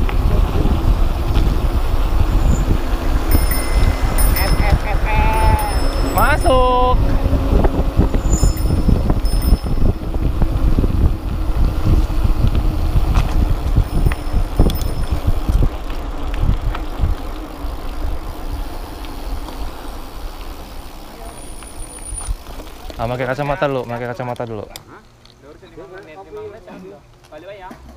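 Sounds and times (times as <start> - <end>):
wind buffeting microphone: 0.0 - 20.3
mountain bike rattling and knocking: 0.0 - 27.9.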